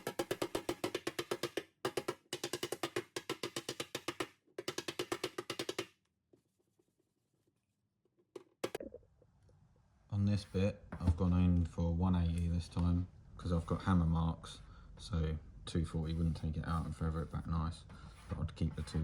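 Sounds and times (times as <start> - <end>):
hammer tapping on metal panel: 0.0 - 5.9.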